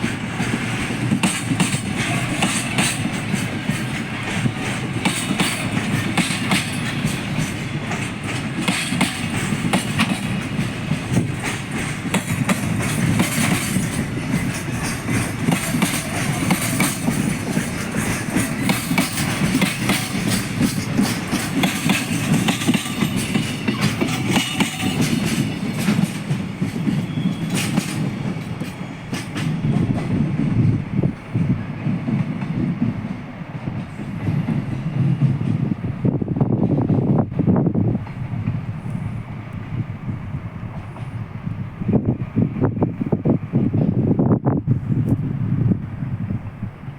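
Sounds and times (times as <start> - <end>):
train wheels clacking: 0.0 - 35.9
train rumble: 0.0 - 46.9.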